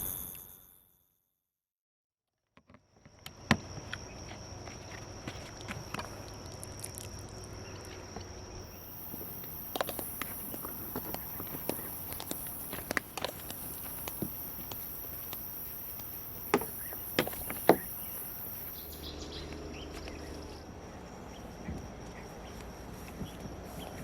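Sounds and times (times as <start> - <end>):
outdoor background noise: 2.6 - 24.0
high hiss: 8.6 - 19.2.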